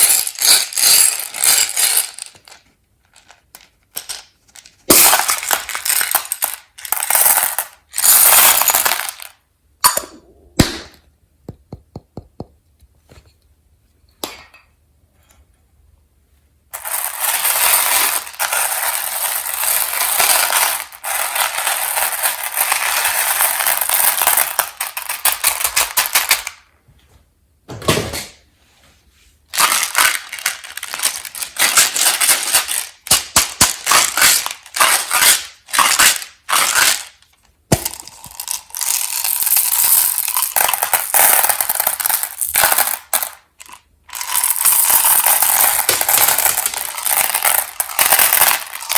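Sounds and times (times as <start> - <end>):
candy pack crackling: 29.6 - 48.9.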